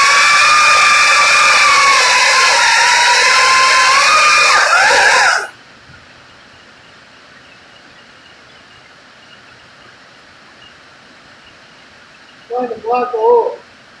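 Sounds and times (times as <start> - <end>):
faint steady hiss: 5.4 - 14.0.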